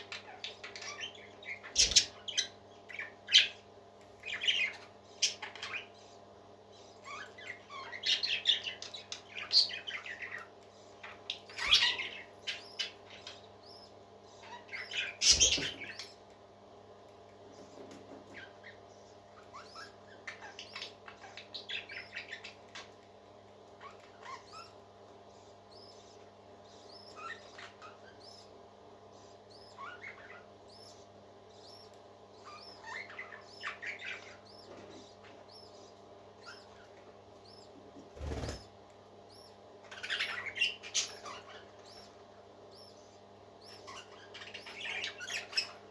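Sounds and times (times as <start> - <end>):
parakeets chirping and warbling: 0.0 - 45.9
steady low hum: 0.0 - 45.9.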